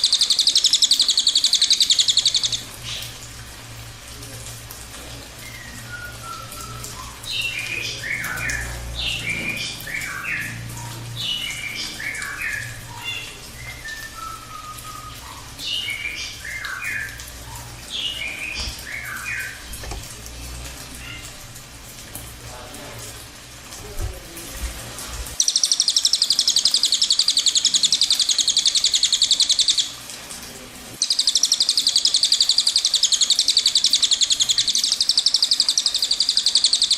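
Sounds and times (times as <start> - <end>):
bird singing rolling song: 0.0 - 3.2, 5.4 - 20.1, 25.4 - 30.0, 31.0 - 36.9.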